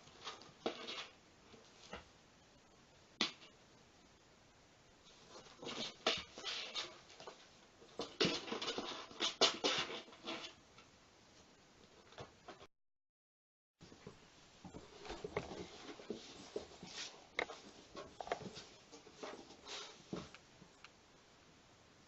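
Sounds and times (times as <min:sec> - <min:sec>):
cats scuffling and scratching: 0:00.0 - 0:02.1, 0:05.0 - 0:10.6, 0:13.9 - 0:20.4.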